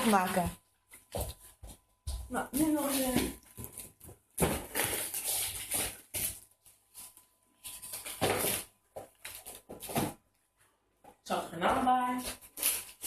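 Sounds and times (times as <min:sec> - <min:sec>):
dog tearing wrapping paper: 0:02.6 - 0:10.1, 0:12.1 - 0:13.0.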